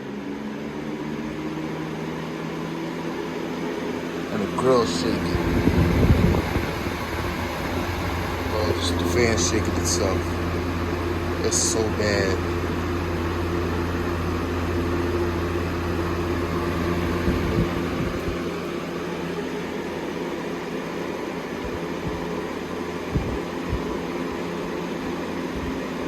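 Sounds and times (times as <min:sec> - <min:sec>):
box fan running: 0:00.0 - 0:26.0
fan knocking: 0:04.2 - 0:20.1, 0:21.6 - 0:24.8.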